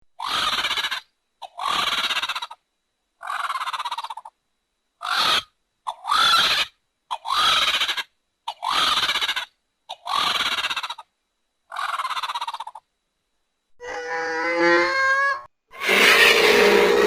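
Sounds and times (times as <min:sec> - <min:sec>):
rough rattling creature calls: 0:00.2 - 0:02.6, 0:05.0 - 0:11.0, 0:13.9 - 0:17.0.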